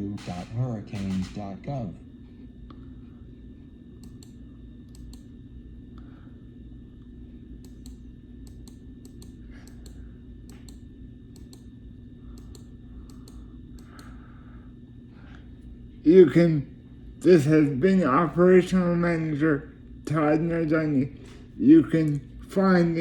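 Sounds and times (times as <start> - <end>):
low electrical hum: 0.0 - 23.0
light clicks: 4.0 - 5.3, 12.4 - 14.1.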